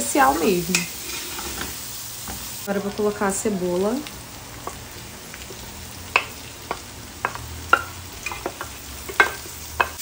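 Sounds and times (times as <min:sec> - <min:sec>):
meat sizzling in a pot: 0:00.0 - 0:10.0
wooden spoon tapping: 0:05.5 - 0:10.0.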